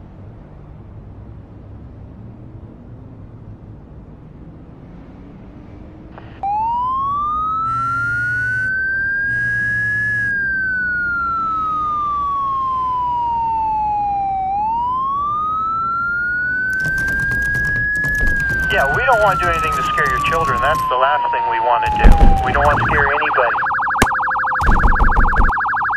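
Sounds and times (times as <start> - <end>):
police siren wailing: 6.2 - 25.9
rapid clatter of clicks: 16.7 - 20.9, 21.9 - 23.1.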